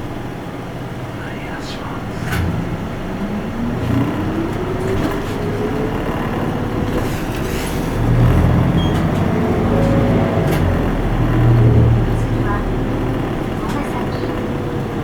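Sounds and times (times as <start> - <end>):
bus engine whine inside cabin: 0.0 - 15.0
deep rumble: 0.0 - 15.0.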